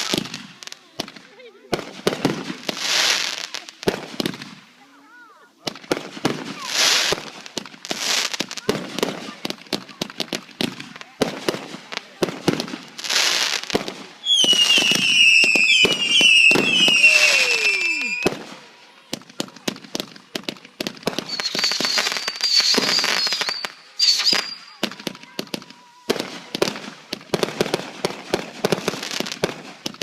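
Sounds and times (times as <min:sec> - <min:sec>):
fireworks popping and crackling: 0:00.0 - 0:30.0
fireworks whistles falling in pitch: 0:14.2 - 0:18.6, 0:21.0 - 0:26.8.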